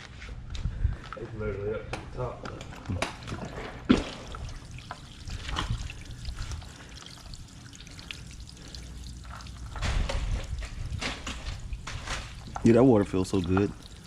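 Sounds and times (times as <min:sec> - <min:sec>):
water pouring and trickling: 0:02.8 - 0:14.0.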